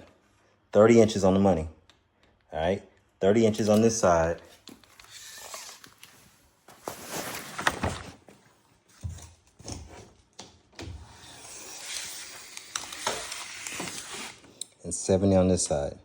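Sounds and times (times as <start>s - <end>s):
tape measure click: 11.8s - 14.7s.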